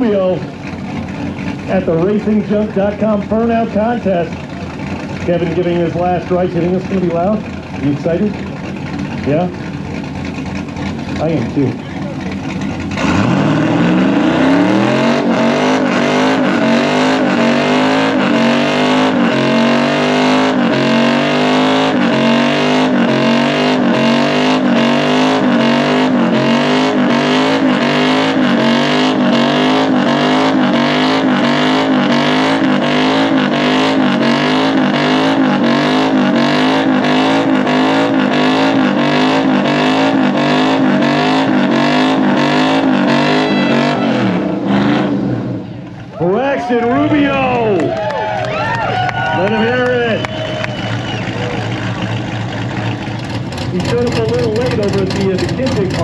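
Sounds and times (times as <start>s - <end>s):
tires spinning on pavement: 0.0s - 56.0s
truck engine revving high: 0.0s - 56.0s.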